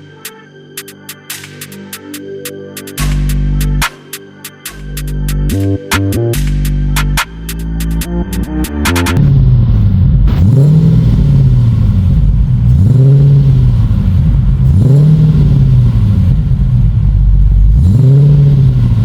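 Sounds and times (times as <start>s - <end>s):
engine idling and revving: 4.9s - 19.0s.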